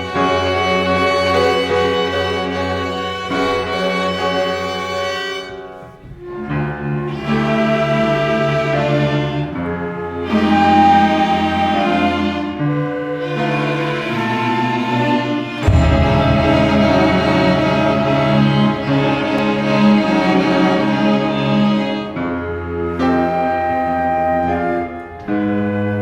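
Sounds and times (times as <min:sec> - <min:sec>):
orchestral strings playing chords: 0:13.9 - 0:22.2.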